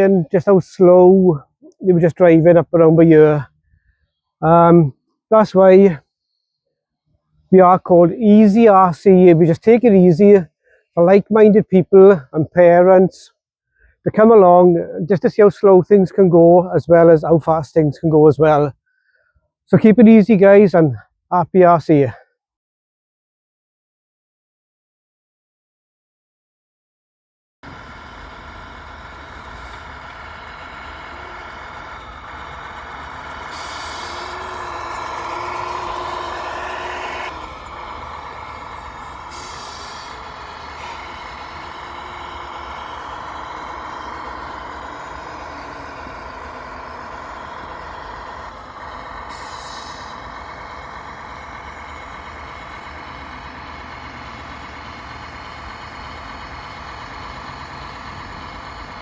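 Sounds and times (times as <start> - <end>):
simulated diesel truck engine: 0.0 - 6.0, 7.4 - 18.7, 27.6 - 59.0
air brake hisses: 38.0 - 41.6, 48.9 - 50.7.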